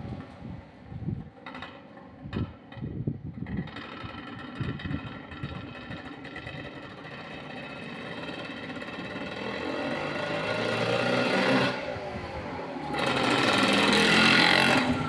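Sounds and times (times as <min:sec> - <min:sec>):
two-stroke engine running: 0:03.4 - 0:11.0, 0:12.9 - 0:15.0.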